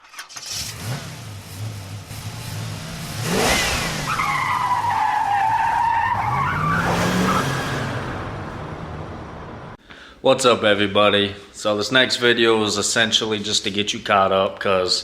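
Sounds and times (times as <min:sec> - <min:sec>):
car engine revving: 0:00.4 - 0:09.8
tyres squealing: 0:04.0 - 0:09.7.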